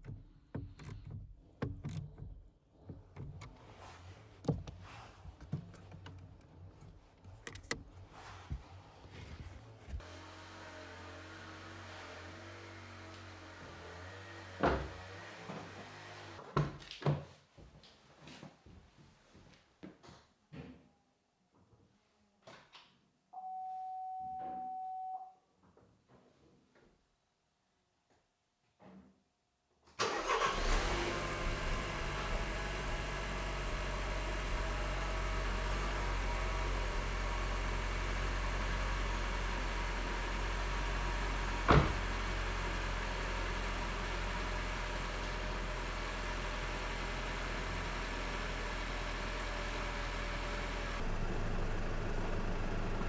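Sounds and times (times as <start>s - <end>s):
car engine starting and idling: 7.5s - 7.8s, 30.0s - 53.0s.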